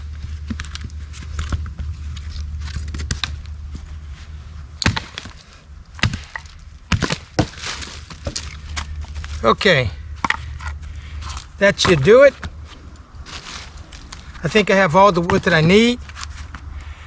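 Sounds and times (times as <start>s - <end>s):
wood crackling: 0.0s - 17.0s
blade chopping wood: 4.8s - 9.0s, 11.6s - 12.6s, 14.1s - 16.0s.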